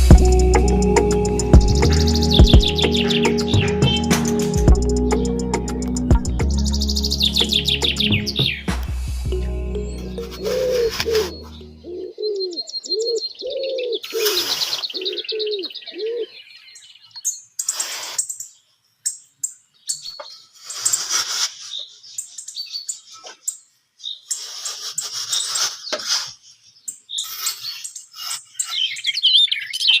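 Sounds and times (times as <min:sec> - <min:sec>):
bird cooing: 0:00.0 - 0:08.6, 0:10.2 - 0:16.4
bird chirping trill: 0:00.0 - 0:21.0.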